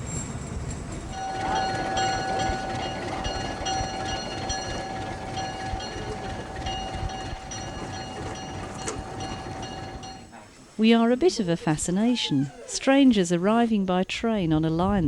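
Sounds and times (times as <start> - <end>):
train rumble: 0.0 - 12.5
higher ringing: 1.1 - 10.3.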